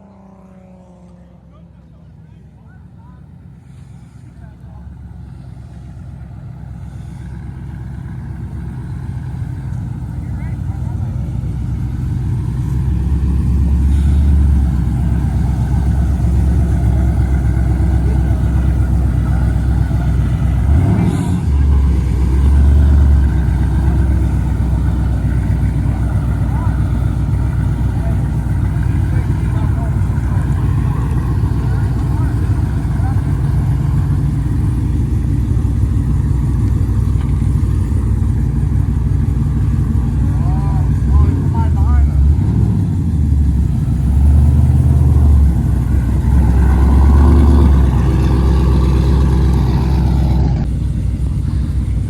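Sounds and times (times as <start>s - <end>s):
car engine rumbling: 0.0s - 52.0s.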